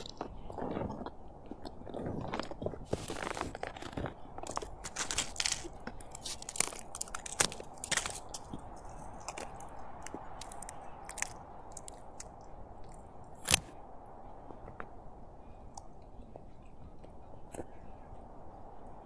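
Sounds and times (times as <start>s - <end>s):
person chewing and crunching: 0.0s - 13.7s.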